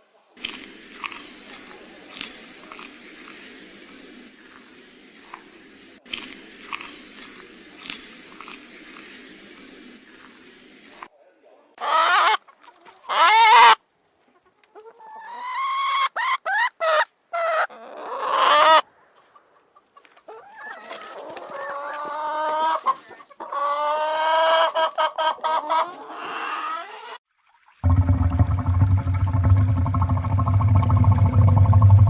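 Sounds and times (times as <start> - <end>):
chickens squawking: 11.8 - 12.4, 13.0 - 13.8, 14.8 - 18.9, 19.8 - 27.2.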